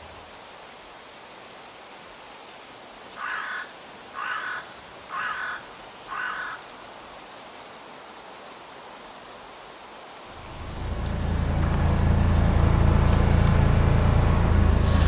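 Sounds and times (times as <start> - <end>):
background hiss: 0.0 - 15.0
crow cawing: 3.2 - 6.7.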